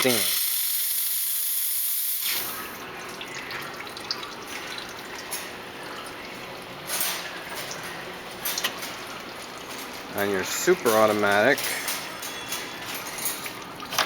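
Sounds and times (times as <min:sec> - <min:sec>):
espresso machine steam wand hissing: 0:00.0 - 0:02.6.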